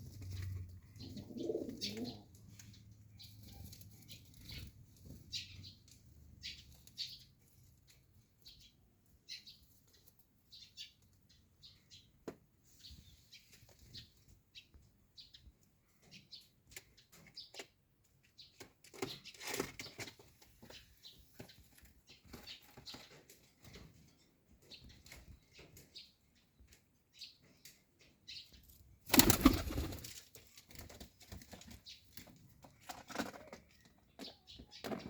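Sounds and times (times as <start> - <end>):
pigeons chirping: 0.0 - 7.5, 27.2 - 35.0
pigeon wing flaps: 29.1 - 30.1.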